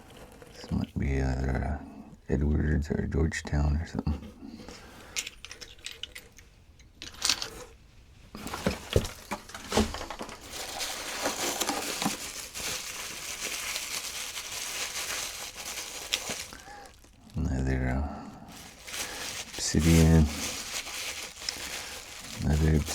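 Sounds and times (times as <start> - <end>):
packing material crinkling: 8.3 - 22.9.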